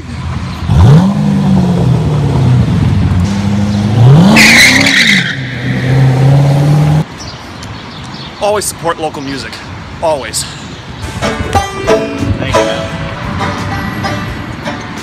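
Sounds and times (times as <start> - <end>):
car engine revving: 0.5 - 7.1.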